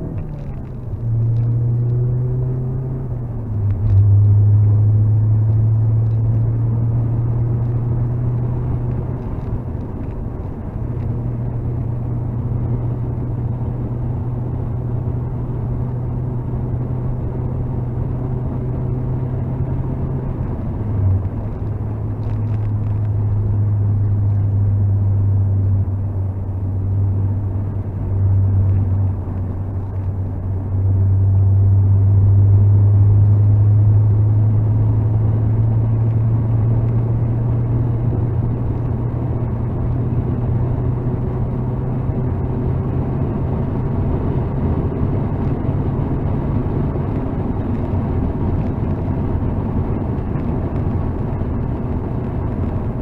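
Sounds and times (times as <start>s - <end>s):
car engine from inside cabin: 0.0s - 53.0s.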